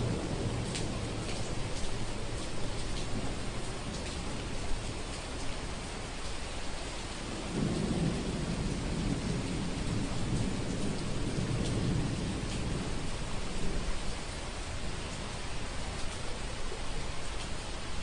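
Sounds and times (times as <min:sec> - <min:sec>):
raindrop ticks: 0:00.0 - 0:06.4, 0:07.6 - 0:14.4
steady rain falling: 0:00.0 - 0:18.0
distant thunder rumble: 0:07.3 - 0:14.8.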